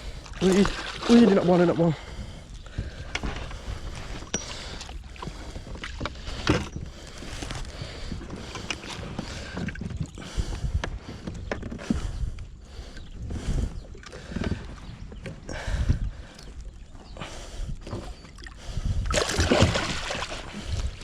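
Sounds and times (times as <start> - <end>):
water and hull rumble: 0.0 - 21.0.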